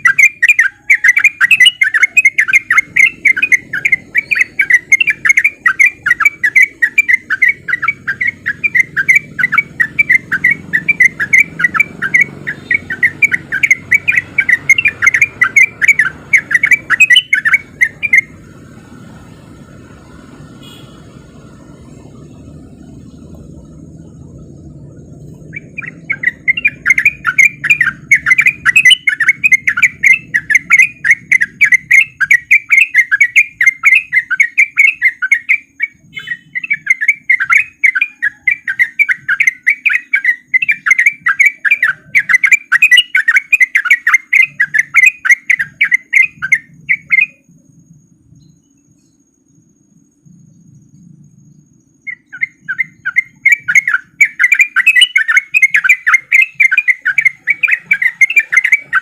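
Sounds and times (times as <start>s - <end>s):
bird singing chattering notes: 0.0s - 49.6s, 50.2s - 59.0s
faint low rumble: 17.6s - 27.3s, 46.8s - 52.2s.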